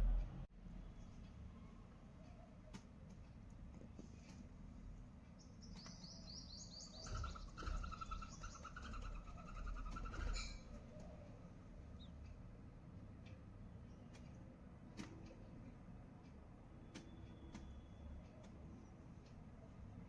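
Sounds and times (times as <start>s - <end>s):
low bumps: 0.0s - 0.5s
nestling birds chirping: 5.0s - 15.6s.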